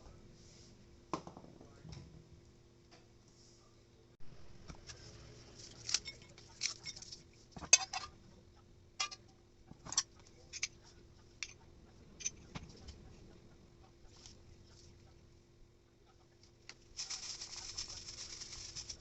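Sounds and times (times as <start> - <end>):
spoon and dishes clinking: 5.9 - 8.2, 9.0 - 10.8.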